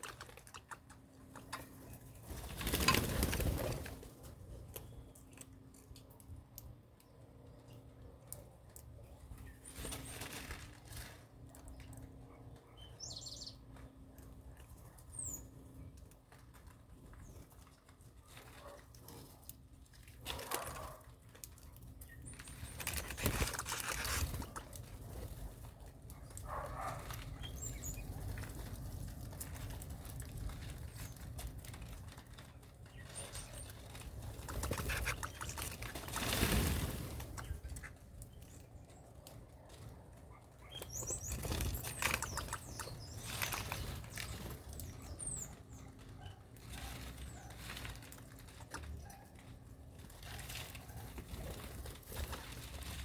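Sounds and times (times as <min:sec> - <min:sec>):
birds fluttering: 0:00.0 - 0:53.0.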